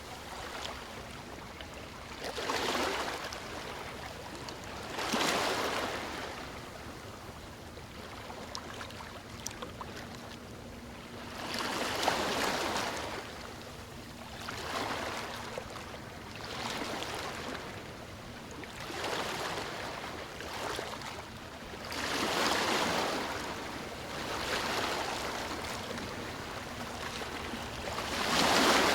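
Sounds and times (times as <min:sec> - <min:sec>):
sea waves washing onto shore: 0:22.0 - 0:28.9.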